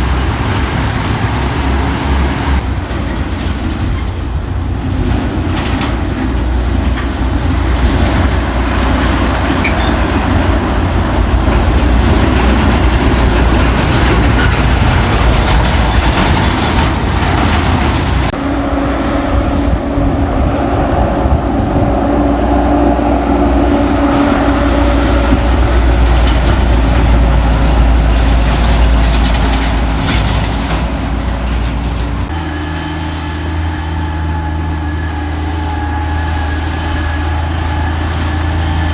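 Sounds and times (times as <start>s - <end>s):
diesel truck engine rumble: 0.0s - 38.9s.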